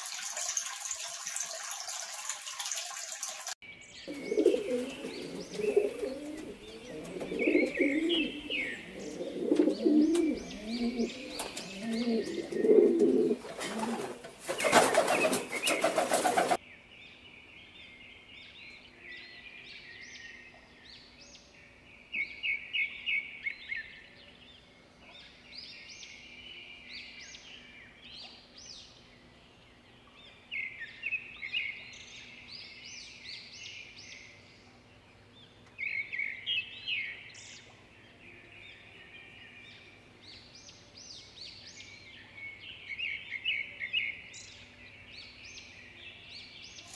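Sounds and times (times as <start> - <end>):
birds chirping and twittering: 0.0 - 46.9
pigeons cooing: 4.1 - 16.6
faint steady hum: 4.1 - 17.6
wings flapping: 9.5 - 16.6.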